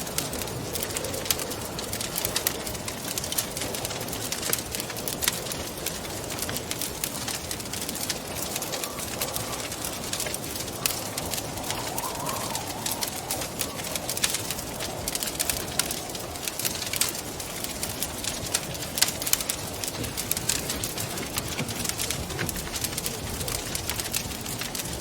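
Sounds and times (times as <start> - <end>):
wood fire crackling and popping: 0.0 - 25.0
wind rushing: 8.2 - 18.5.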